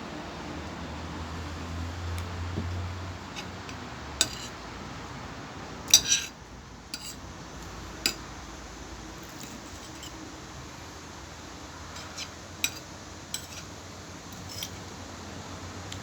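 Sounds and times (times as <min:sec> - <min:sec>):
cutlery clinking on a plate: 0:02.6 - 0:04.6, 0:05.9 - 0:06.4, 0:07.0 - 0:08.3, 0:12.0 - 0:13.7, 0:14.3 - 0:14.8.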